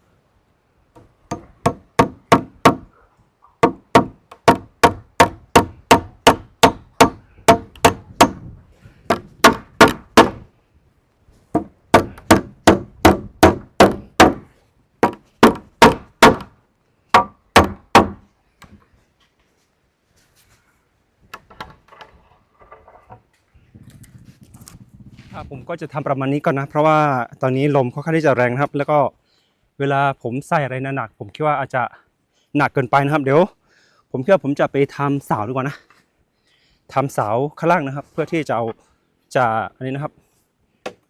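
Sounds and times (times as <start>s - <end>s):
hammer blows on timber: 1.0s - 2.9s, 3.6s - 10.5s, 11.6s - 16.5s, 17.2s - 18.2s.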